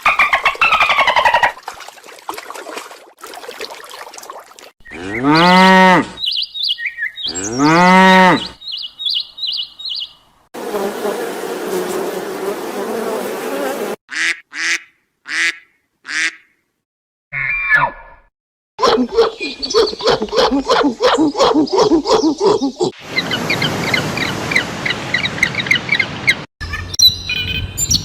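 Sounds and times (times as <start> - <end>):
cow mooing: 5.0 - 6.2, 7.3 - 8.6.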